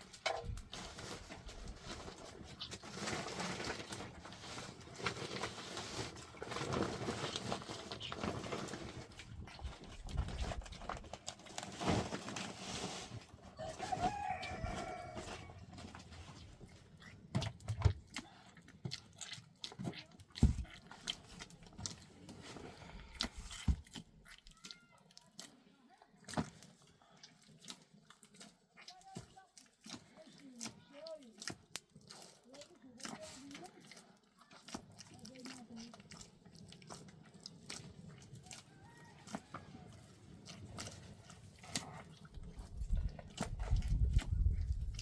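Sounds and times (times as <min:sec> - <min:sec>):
rustling: 0:00.0 - 0:16.7
rooster crowing: 0:13.6 - 0:15.5, 0:38.6 - 0:39.8.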